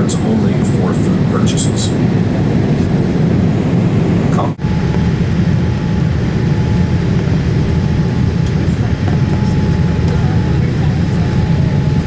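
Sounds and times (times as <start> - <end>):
airliner cabin noise: 0.0 - 12.0
faint steady hum: 3.6 - 12.0.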